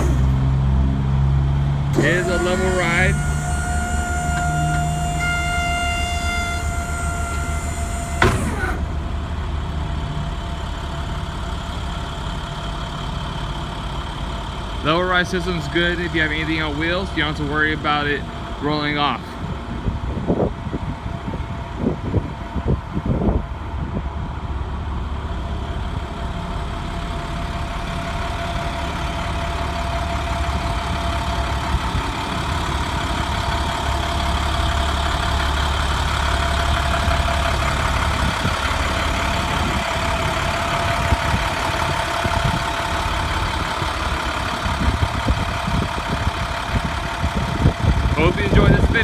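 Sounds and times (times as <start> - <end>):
motor humming and whining: 1.9 - 9.8.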